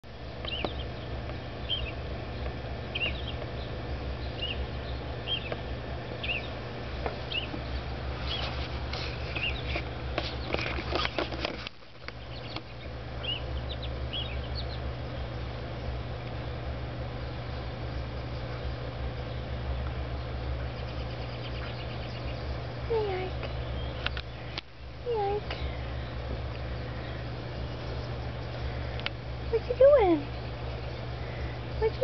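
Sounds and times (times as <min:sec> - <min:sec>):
small bird chirping: 0:00.4 - 0:11.3, 0:12.0 - 0:32.0
clicks and rustling: 0:08.3 - 0:12.7.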